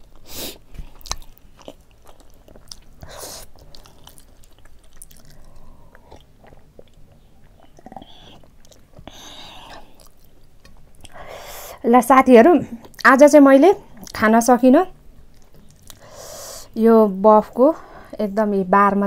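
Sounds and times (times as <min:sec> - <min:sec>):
close chewing: 0:00.0 - 0:11.2, 0:15.2 - 0:16.1.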